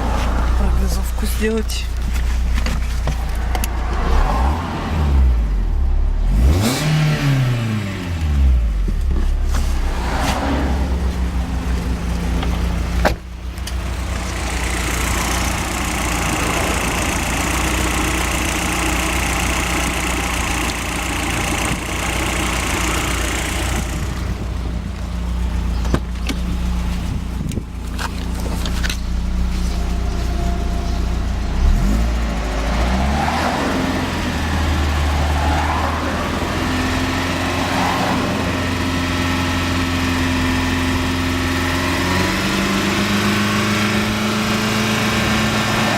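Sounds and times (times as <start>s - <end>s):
car engine running: 0.0s - 45.9s
engine knocking: 11.8s - 32.6s.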